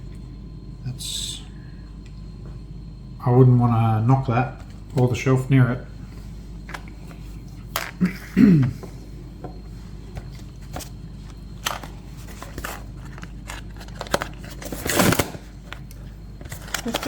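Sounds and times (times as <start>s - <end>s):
packaging rustling scrape: 10.3s - 15.8s, 16.4s - 17.0s.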